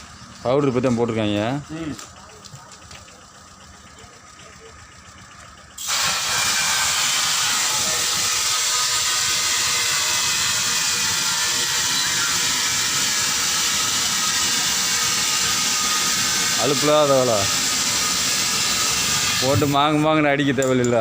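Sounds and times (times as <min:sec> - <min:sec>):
compressed air hissing: 0:05.8 - 0:14.6.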